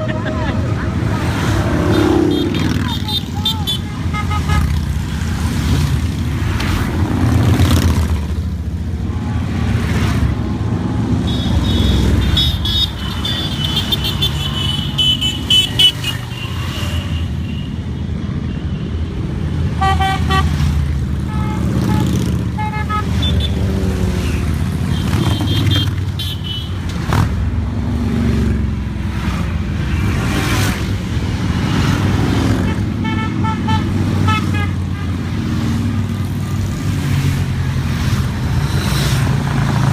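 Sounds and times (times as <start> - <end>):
motorcycles passing: 0.0 - 39.9
motorcycle horns: 1.8 - 4.9, 11.2 - 17.8, 19.6 - 23.7, 24.3 - 27.1, 32.6 - 36.8.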